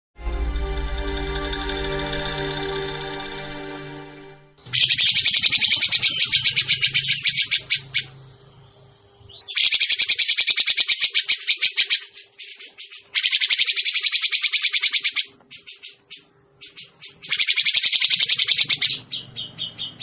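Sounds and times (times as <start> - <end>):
music: 0.2 - 6.2
bird chattering call: 4.6 - 8.2, 9.3 - 20.0.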